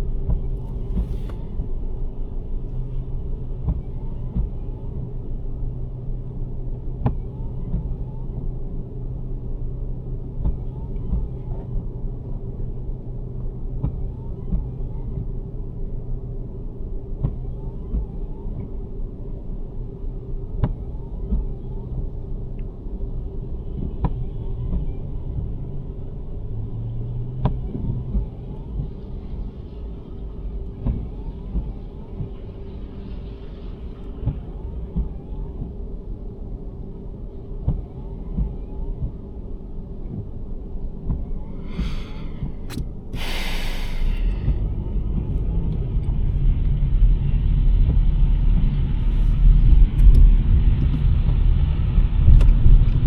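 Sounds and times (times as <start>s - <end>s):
constant hum: 0.0s - 53.0s
tyres and engine rumbling: 20.3s - 52.8s
faint sharp click: 42.6s - 43.2s.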